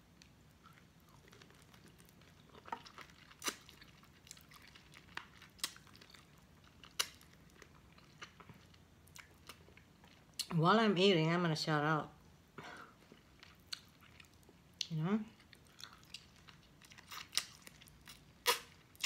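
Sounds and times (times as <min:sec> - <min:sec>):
wet chewing: 0:00.2 - 0:10.5, 0:13.0 - 0:19.0.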